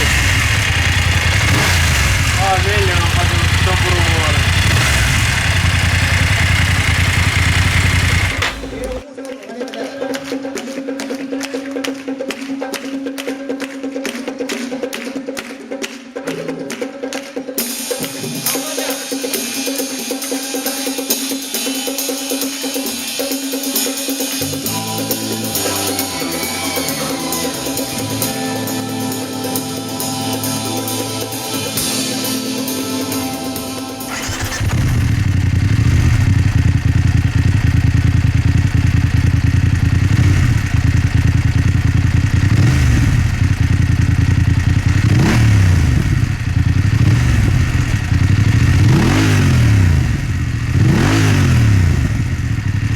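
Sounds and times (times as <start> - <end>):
motorcycle engine revving: 0.0 - 9.0, 24.4 - 29.3, 30.0 - 52.9
music with drum beat: 17.5 - 34.0.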